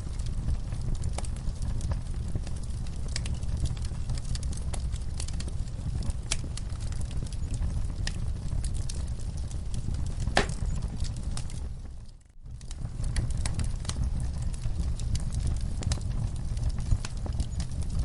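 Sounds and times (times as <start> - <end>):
low rumble of flames: 0.0 - 18.0
wood fire crackling: 0.0 - 18.0
sharp pops and snaps: 10.2 - 11.1.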